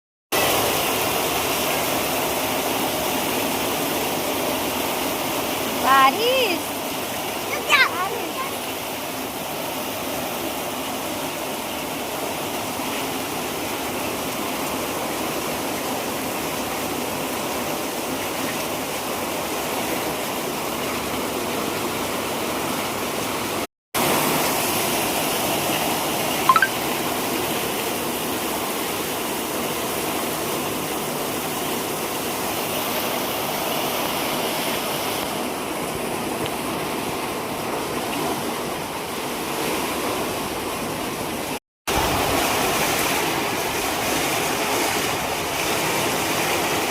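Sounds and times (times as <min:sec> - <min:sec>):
heavy rain pouring: 0:00.4 - 0:46.9
sharp chirp: 0:26.5 - 0:26.7.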